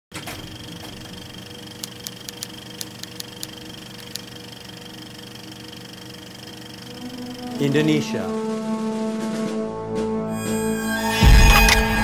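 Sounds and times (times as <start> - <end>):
machine hum with high whine: 0.1 - 8.9
sharp clicks: 1.8 - 4.3.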